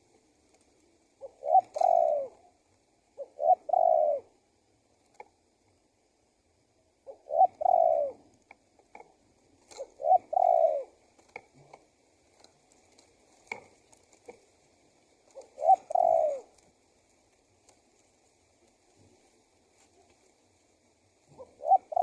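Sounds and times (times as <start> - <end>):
dove cooing: 0.0 - 4.5, 6.9 - 8.4, 9.0 - 16.9, 18.5 - 22.0.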